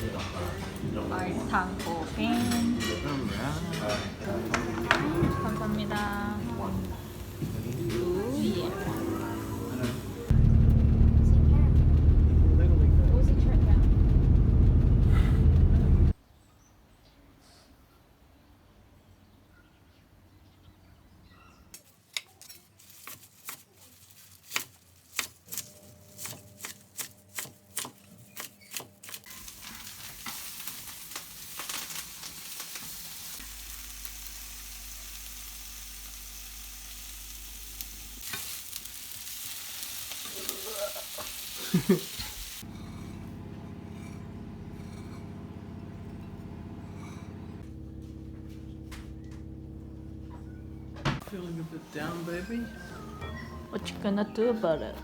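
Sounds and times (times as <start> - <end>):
hissing sizzle: 4.5 - 11.0, 29.2 - 42.7.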